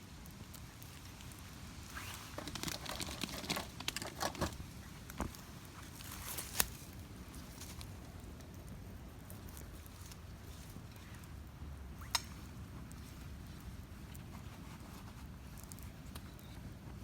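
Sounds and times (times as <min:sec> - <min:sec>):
dry twigs and leaves rustling: 0:00.0 - 0:16.8
twig snapping: 0:02.4 - 0:07.0, 0:12.0 - 0:13.0.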